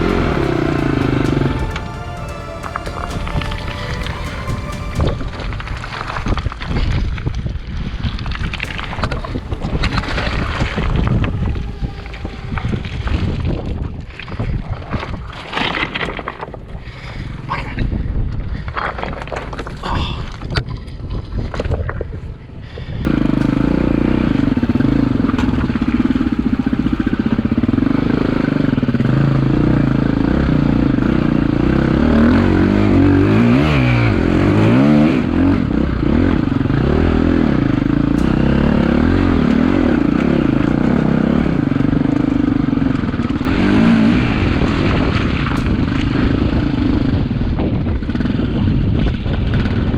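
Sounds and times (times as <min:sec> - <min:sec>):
dirt bike engine revving: 0:00.0 - 0:06.3, 0:08.6 - 0:13.9, 0:23.1 - 0:49.9
rushing noise: 0:00.0 - 0:18.7.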